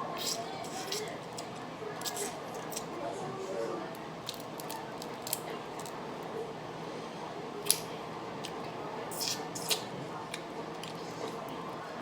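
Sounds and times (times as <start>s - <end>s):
eating clicks and crackles: 0.2s - 3.0s, 3.9s - 6.0s, 7.6s - 11.6s.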